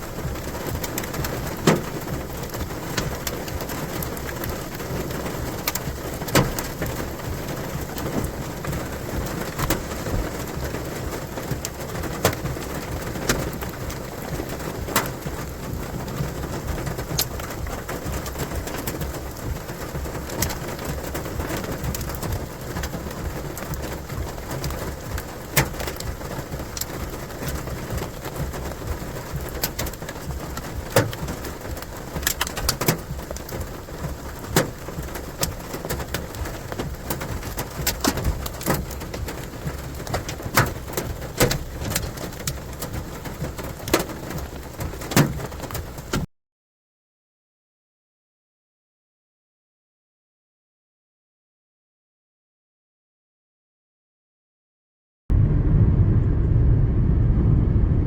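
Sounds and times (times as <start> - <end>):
heavy raindrops tapping: 0.0 - 46.3
steady rain: 0.0 - 46.3.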